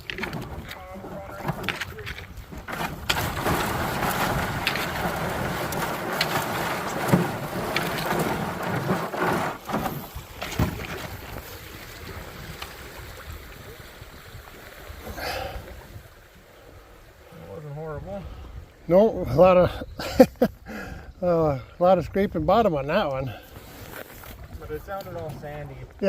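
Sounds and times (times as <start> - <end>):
canoe knocking against stones: 0.0 - 11.6
canoe hull scraping river bottom: 0.0 - 19.6, 22.0 - 26.0.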